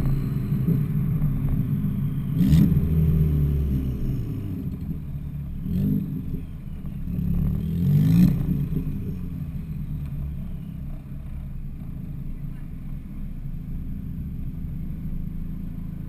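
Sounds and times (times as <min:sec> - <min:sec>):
car exhaust engine revving: 0:00.0 - 0:16.0.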